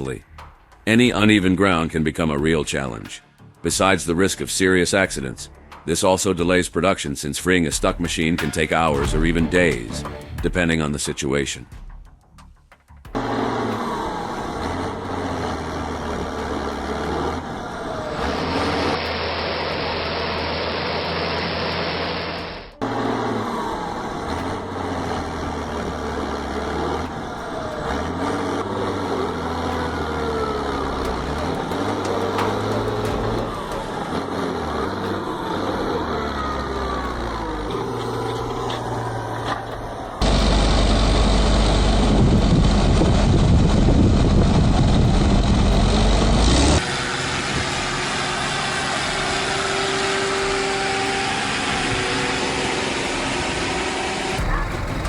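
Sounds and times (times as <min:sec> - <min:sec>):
farm machinery engines revving: 0:13.1 - 0:55.0.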